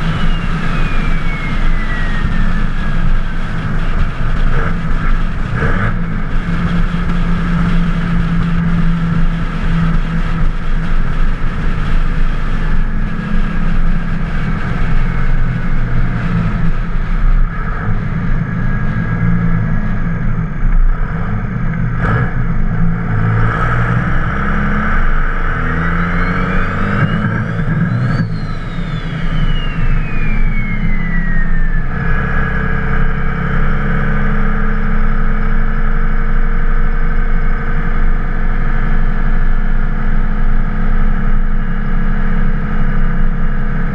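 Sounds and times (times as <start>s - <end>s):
turbo whistle: 0.0s - 3.8s, 25.8s - 32.5s
diesel engine running: 0.0s - 43.9s.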